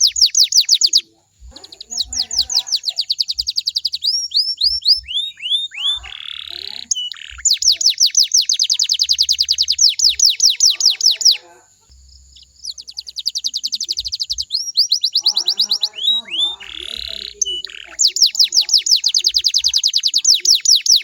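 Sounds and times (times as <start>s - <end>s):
canary trilling: 0.0s - 21.0s.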